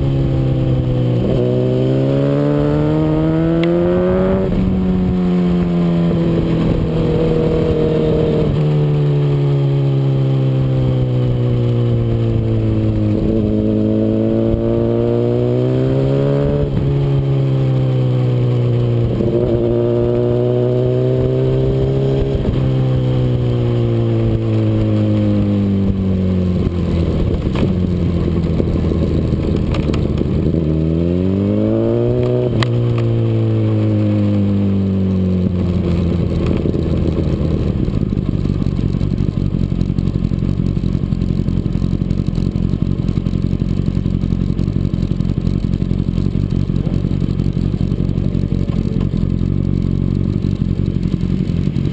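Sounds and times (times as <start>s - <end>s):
sport bike engine revving: 0.0s - 38.3s.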